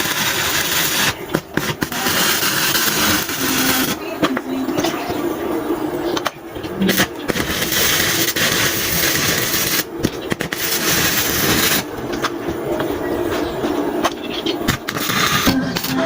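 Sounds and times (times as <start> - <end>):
metalworking hiss and crackle: 0.0 - 16.0.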